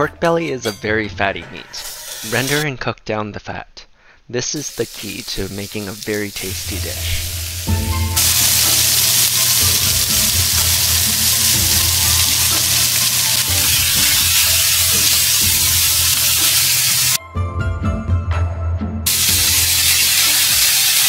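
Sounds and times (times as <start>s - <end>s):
meat sizzling in a frying pan: 4.6s - 17.2s, 19.1s - 21.0s.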